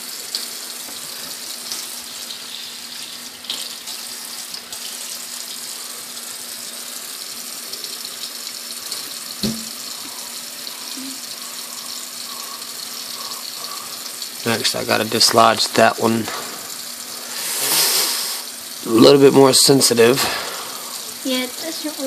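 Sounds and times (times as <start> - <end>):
tap water running into sink: 0.0 - 22.0
knock: 9.4 - 9.7.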